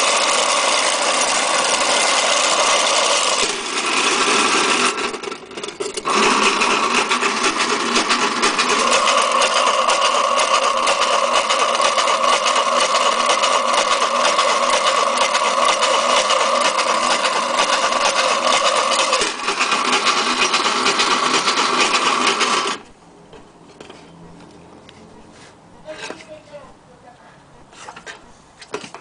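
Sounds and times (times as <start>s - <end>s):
toy washing machine whirring: 0.0s - 22.8s.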